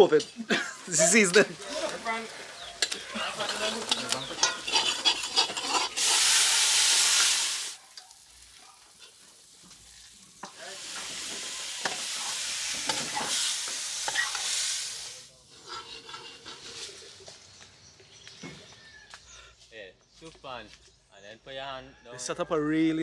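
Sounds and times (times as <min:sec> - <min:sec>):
food sizzling in hot oil: 0:00.0 - 0:16.8
metal ladle scraping steel pot: 0:02.6 - 0:06.4, 0:15.5 - 0:17.1.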